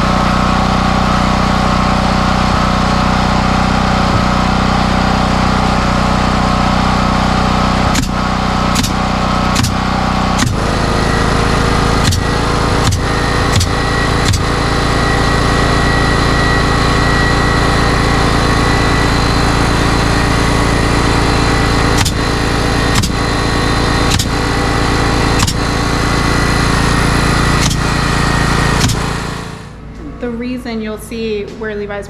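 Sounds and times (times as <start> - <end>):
small engine running steadily: 0.0 - 31.6
sharp knocks: 7.9 - 8.2, 8.8 - 9.0, 9.6 - 10.6, 12.0 - 14.5, 22.0 - 22.3, 22.9 - 23.3, 24.1 - 24.4, 25.4 - 25.7, 27.6 - 27.9, 28.8 - 29.1.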